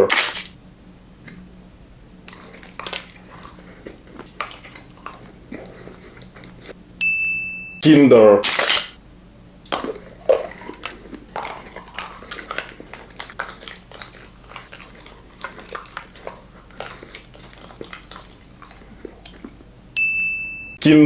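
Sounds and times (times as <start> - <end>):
chocolate being chewed crunchily: 0.0 - 0.6, 2.1 - 6.8, 9.6 - 20.0.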